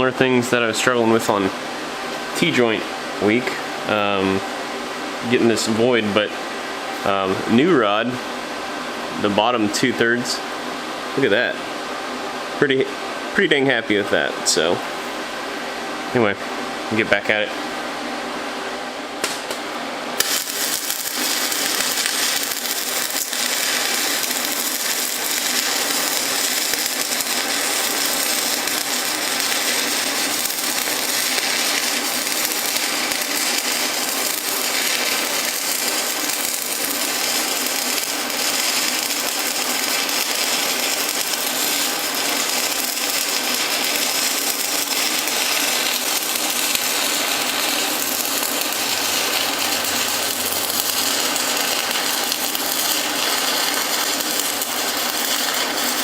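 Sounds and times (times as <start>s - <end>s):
welding arc crackling: 20.2s - 56.0s.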